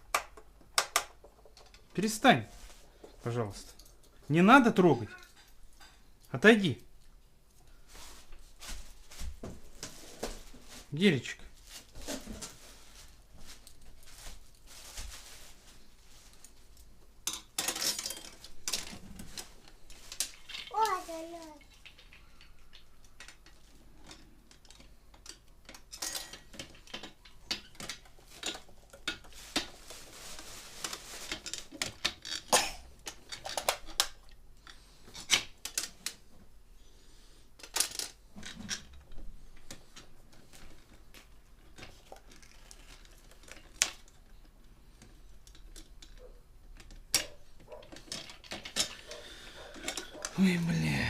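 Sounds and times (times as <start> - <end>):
metal and plastic parts clattering: 0.1 - 2.0, 17.2 - 20.7, 21.7 - 36.2, 37.6 - 50.4.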